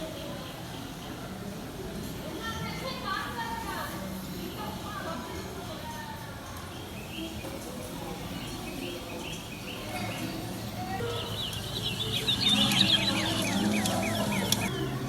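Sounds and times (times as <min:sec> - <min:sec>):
murmur of crowd: 0:00.0 - 0:15.0
birds chirping: 0:06.7 - 0:15.0.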